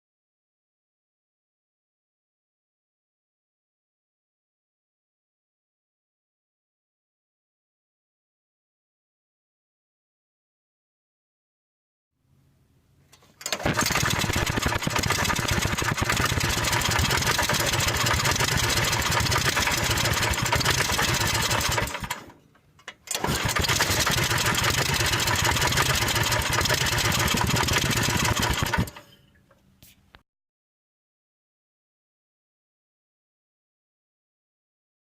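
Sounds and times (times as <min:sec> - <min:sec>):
go-kart engine running: 0:13.4 - 0:22.3, 0:23.1 - 0:29.0.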